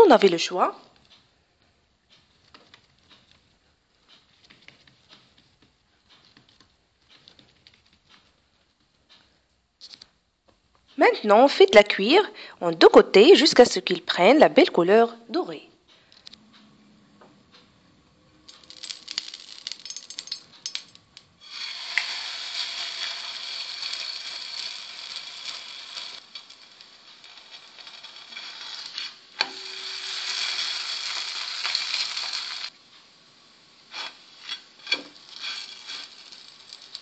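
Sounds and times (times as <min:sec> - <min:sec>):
flatbread sizzling on a pan: 0:21.4 - 0:32.8, 0:33.5 - 0:37.0.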